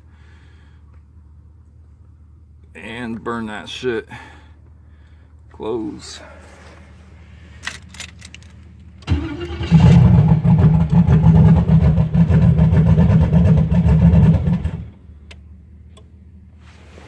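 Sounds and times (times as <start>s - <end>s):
car engine cranking and starting: 7.3s - 16.2s.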